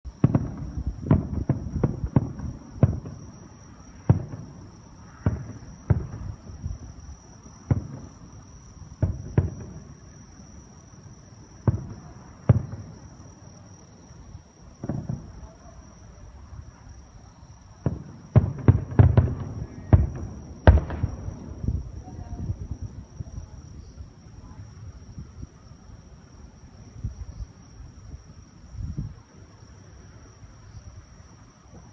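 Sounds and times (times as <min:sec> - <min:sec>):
fireworks booming: 0:00.1 - 0:13.9, 0:14.7 - 0:16.9, 0:17.6 - 0:25.5.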